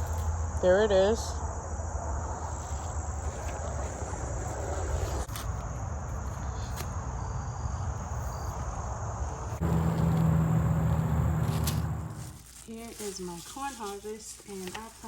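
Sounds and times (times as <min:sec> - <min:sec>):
crickets chirring: 0:00.0 - 0:15.0
steady low hum: 0:09.3 - 0:12.5
low microphone rumble: 0:09.6 - 0:12.5.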